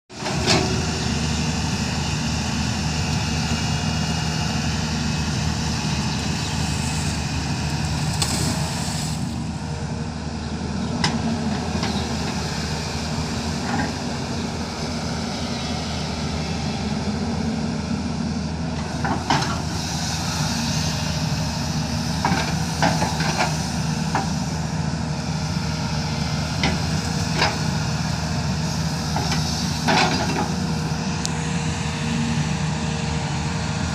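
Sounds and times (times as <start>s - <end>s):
digging machine diesel engine: 0.1s - 33.9s.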